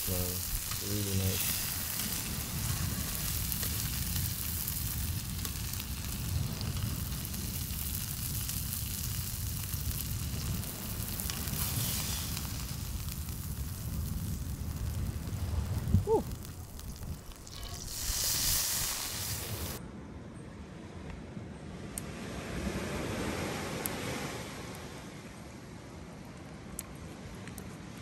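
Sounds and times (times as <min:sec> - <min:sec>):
fish sizzling in hot oil: 0:00.0 - 0:19.8.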